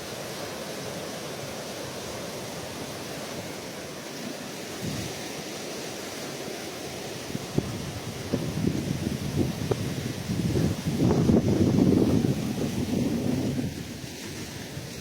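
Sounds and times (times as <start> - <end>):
sea surf washing: 0.0 - 15.0
wind rumble on microphone: 4.8 - 5.2, 7.2 - 15.0.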